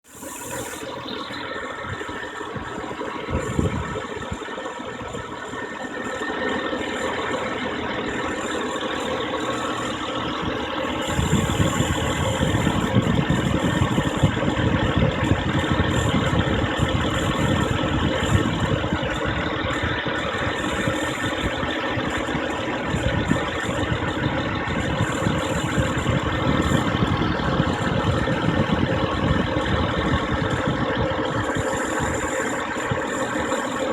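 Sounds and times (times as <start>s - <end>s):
car engine idling: 0.1s - 33.9s
failing belt noise: 0.1s - 33.9s.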